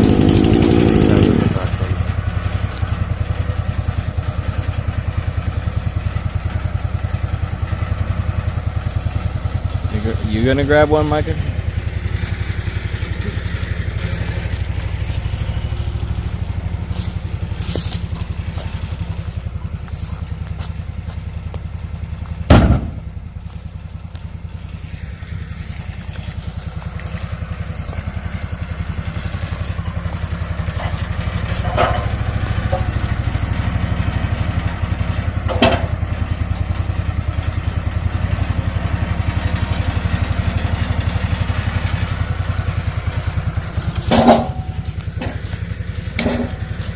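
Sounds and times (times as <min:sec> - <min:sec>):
engine idling: 0:00.0 - 0:46.9
heavy wooden thud: 0:22.5 - 0:23.1.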